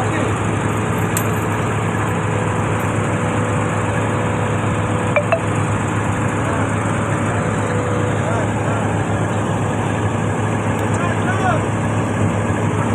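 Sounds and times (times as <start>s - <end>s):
engine humming: 0.0s - 11.5s
short metallic clinks: 0.7s - 3.0s.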